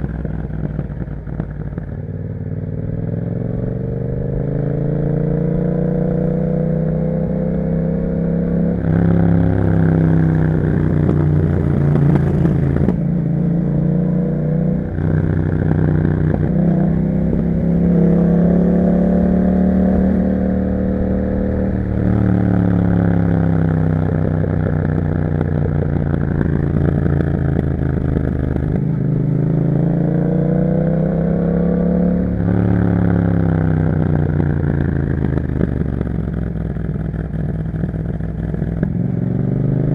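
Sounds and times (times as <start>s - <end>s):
motorcycle engine revving: 0.0s - 39.9s
motorcycle gear changes: 8.9s - 13.3s, 21.4s - 29.0s.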